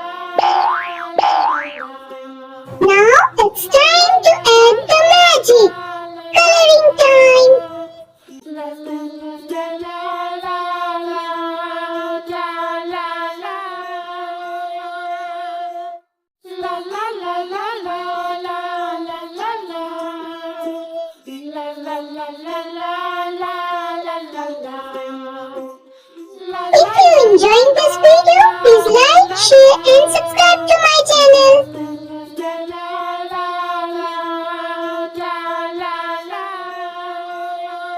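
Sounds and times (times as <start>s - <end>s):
children's tune with wordless singing: 0.0s - 37.9s.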